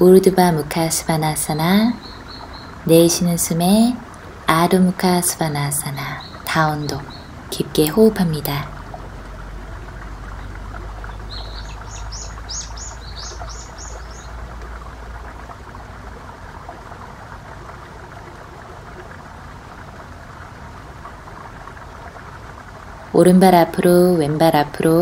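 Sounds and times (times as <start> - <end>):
steady outdoor hiss: 0.0 - 25.0
songbird chirping: 1.1 - 8.7, 10.4 - 14.4.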